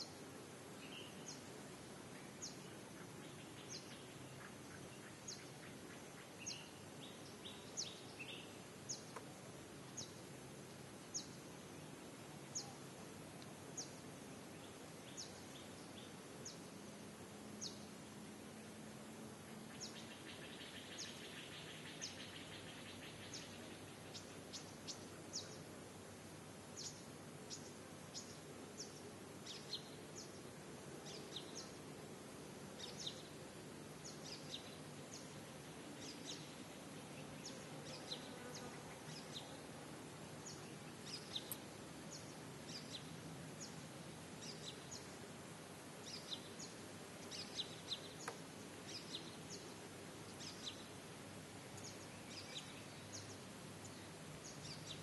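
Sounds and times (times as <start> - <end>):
steady background hiss: 0.0 - 55.0
birds chirping: 40.4 - 43.8, 46.0 - 50.9, 51.8 - 55.0.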